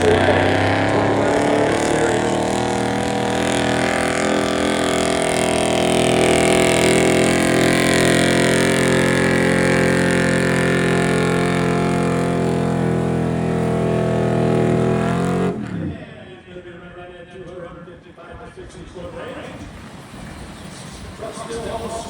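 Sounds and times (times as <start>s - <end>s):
truck engine at full throttle: 0.0s - 16.3s.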